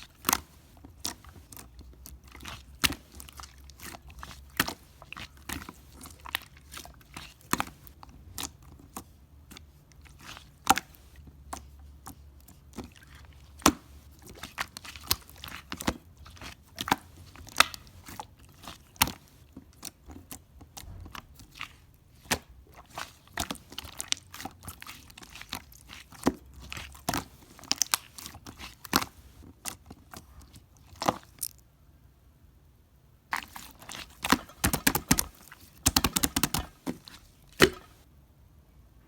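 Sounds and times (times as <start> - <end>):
person chewing crisp food: 0.0 - 31.6, 33.3 - 38.0.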